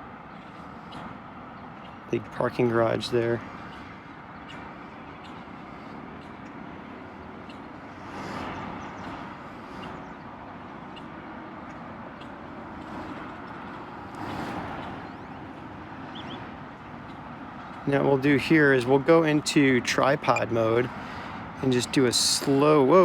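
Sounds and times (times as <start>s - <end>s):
road traffic hiss: 0.0s - 23.0s
vehicles passing: 0.0s - 23.0s.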